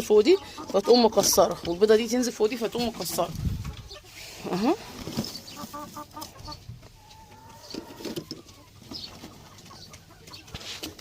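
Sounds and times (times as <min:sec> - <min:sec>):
hens clucking: 0:00.0 - 0:11.0
hen long drawn-out call: 0:05.5 - 0:08.8.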